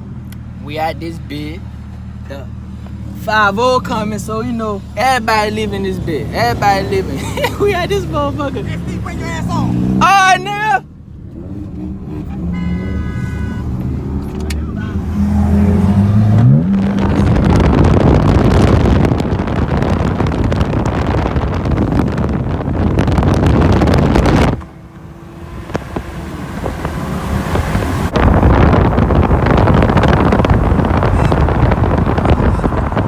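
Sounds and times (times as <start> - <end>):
car engine revving: 0.0 - 33.0
wind noise: 14.9 - 33.0.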